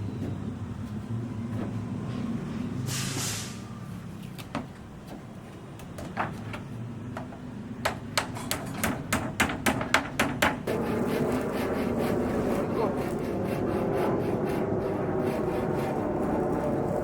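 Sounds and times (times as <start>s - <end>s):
short hiss: 2.9s - 3.6s
steady low hum: 10.6s - 17.0s.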